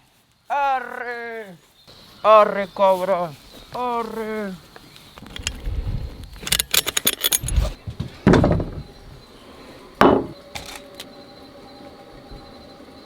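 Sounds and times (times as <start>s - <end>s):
light metallic clinks and rattles: 5.2s - 5.7s, 6.3s - 8.9s, 10.0s - 11.1s
knocks and rustles: 5.2s - 9.2s, 10.0s - 10.9s.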